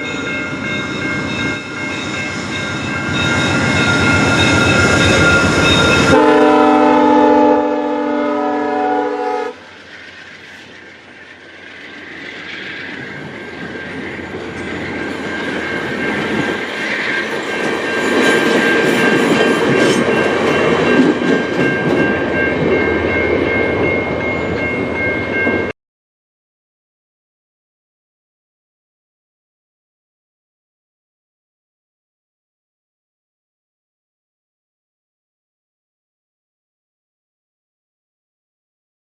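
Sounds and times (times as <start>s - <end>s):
high ringing from wheels: 0.0s - 6.2s, 9.5s - 25.7s
train wheels rumbling on rails: 0.0s - 25.7s
train horn: 6.0s - 9.6s.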